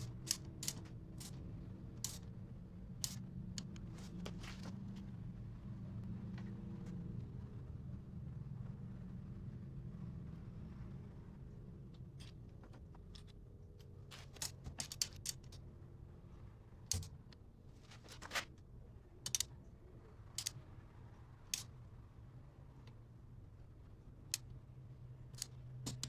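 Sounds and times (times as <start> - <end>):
small metal parts clicking: 0.0 - 1.4, 2.0 - 2.3, 3.0 - 3.9, 13.1 - 15.6, 16.9 - 18.5, 19.2 - 19.6, 20.3 - 20.7, 21.5 - 21.7, 24.3 - 24.6, 25.3 - 26.0.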